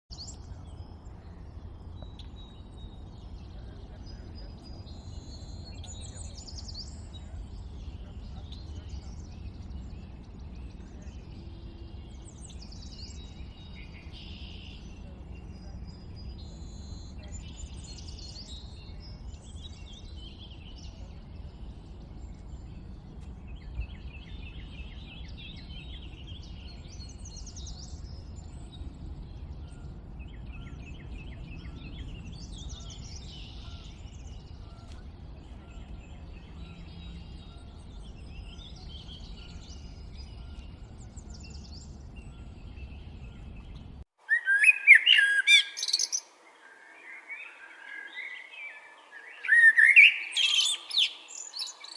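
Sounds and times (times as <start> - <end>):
birds chirping and trilling: 0.1 - 51.9
faint low background rumble: 0.2 - 44.1
loud bird calling: 44.2 - 46.2.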